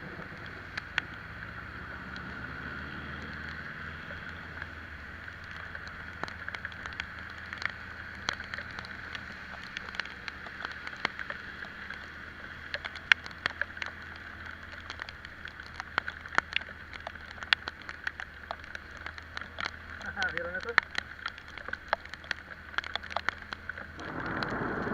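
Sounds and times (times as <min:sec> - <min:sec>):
raindrops tapping on microphone: 0:00.0 - 0:24.9
wind and road noise: 0:00.0 - 0:24.9
scooter engine hum: 0:23.8 - 0:24.9.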